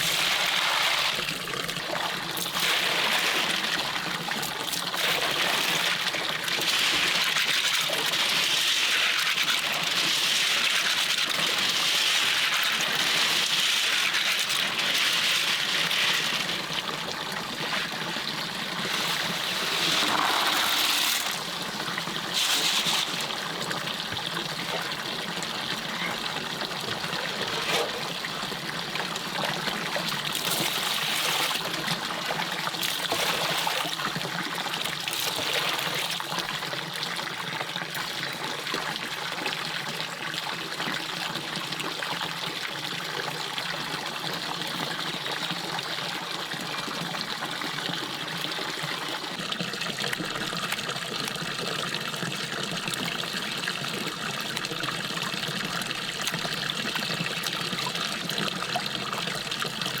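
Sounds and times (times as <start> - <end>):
stream water trickling: 12.2 - 60.0.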